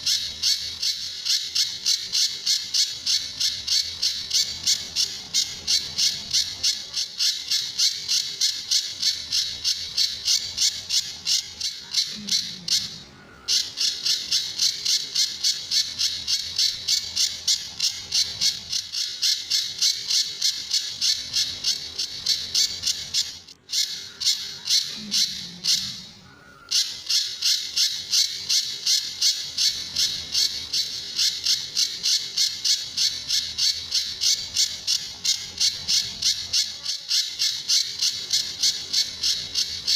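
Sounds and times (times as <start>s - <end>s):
bird calling high sharp notes: 0.0s - 39.9s.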